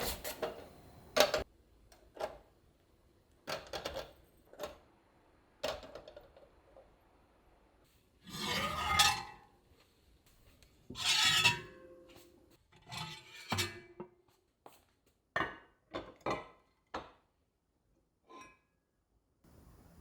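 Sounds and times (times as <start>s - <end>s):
utensils scraping cookware: 8.3s - 9.5s, 10.9s - 12.0s, 12.8s - 13.9s.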